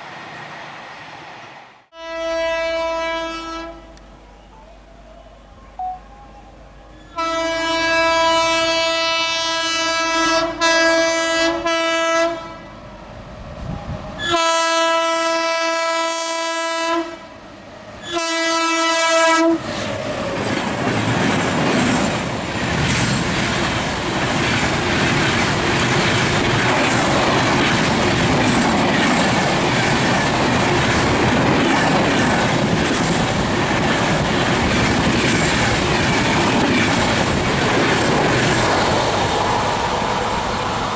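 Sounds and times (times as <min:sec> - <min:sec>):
train passing with rushing rail noise: 0:00.0 - 0:40.9
train horn blasts: 0:01.9 - 0:04.5, 0:07.0 - 0:12.7, 0:14.2 - 0:17.3, 0:18.0 - 0:19.7
wheels clacking over rail joints: 0:19.7 - 0:39.6.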